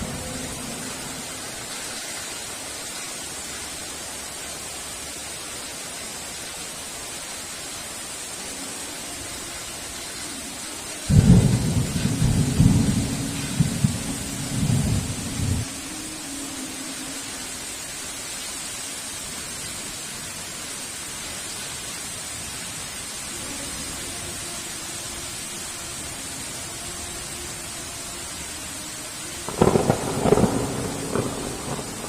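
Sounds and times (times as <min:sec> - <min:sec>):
heavy rain: 0:00.0 - 0:32.0
thunder clap rumbling: 0:11.1 - 0:15.7, 0:29.4 - 0:32.0.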